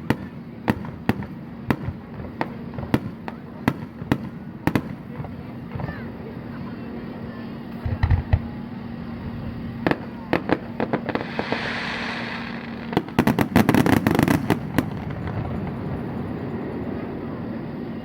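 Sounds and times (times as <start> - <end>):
fireworks bangs: 10.6 - 15.3
fireworks hissing: 10.8 - 15.0.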